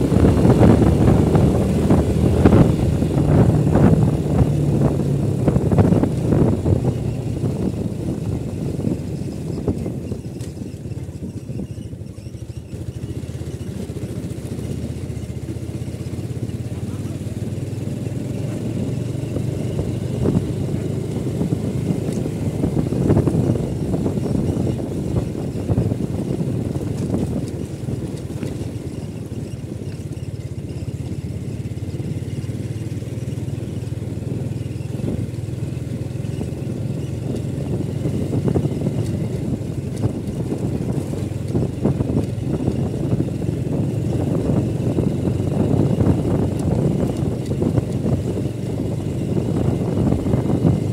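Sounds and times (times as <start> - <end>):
motorcycle engine running: 0.0 - 50.9.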